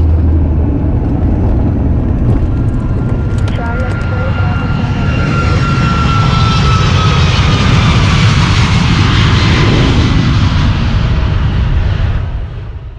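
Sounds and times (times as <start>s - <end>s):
whining tone: 0.0s - 8.3s
propeller plane engine drone: 0.0s - 12.9s.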